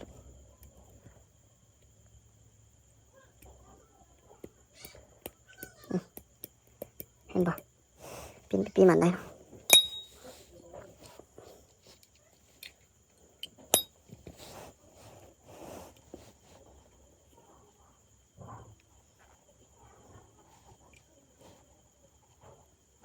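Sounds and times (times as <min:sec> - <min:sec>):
sharp ringing metallic clicks: 0:09.7 - 0:10.2
small metal parts clicking: 0:09.7 - 0:10.2, 0:13.4 - 0:13.9
thin high tone: 0:09.7 - 0:10.2.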